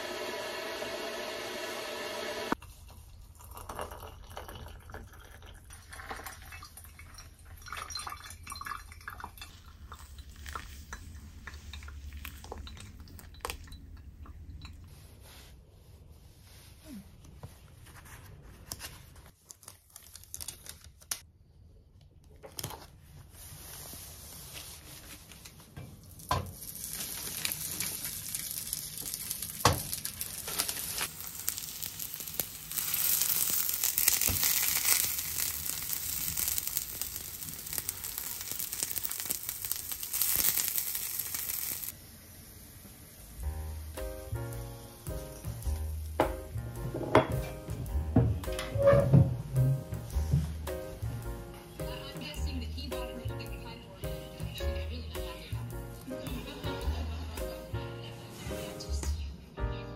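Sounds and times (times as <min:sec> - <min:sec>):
handling and rustling: 0:22.2 - 0:41.8
food sizzling in hot oil: 0:26.2 - 0:46.6.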